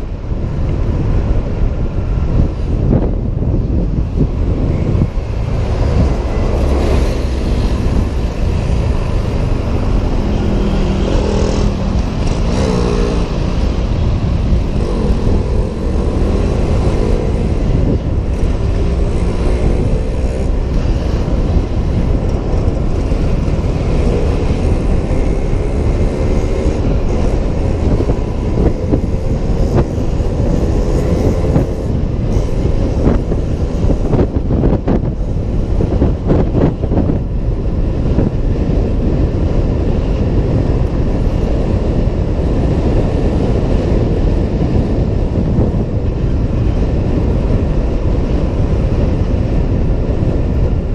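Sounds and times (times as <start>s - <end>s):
vehicle engines: 0.0s - 50.9s
wind and road noise: 0.0s - 50.9s.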